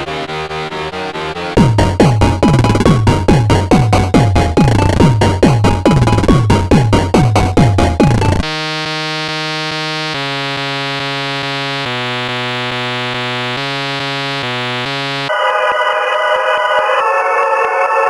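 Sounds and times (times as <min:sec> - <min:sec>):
techno drum machine beat: 0:01.5 - 0:08.7, 0:09.6 - 0:15.3
buzzy synth long notes: 0:08.1 - 0:15.3.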